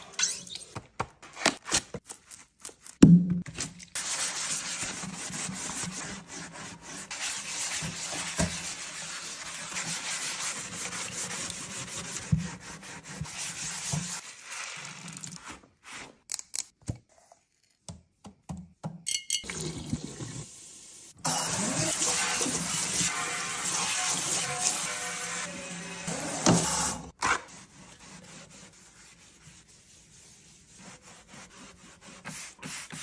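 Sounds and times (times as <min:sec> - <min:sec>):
water pouring: 0:14.2 - 0:15.6, 0:19.4 - 0:20.5.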